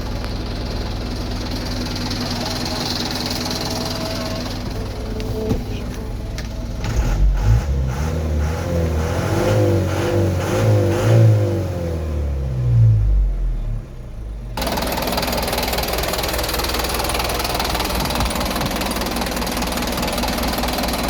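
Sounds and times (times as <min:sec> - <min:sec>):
truck engine revving: 0:02.1 - 0:13.5.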